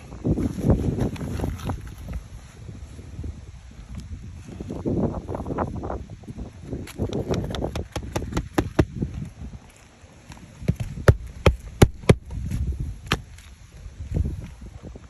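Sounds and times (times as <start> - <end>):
wind rumbling on microphone: 0.0 - 15.0
hammer tapping on roof shingles: 7.2 - 9.0, 10.8 - 12.3.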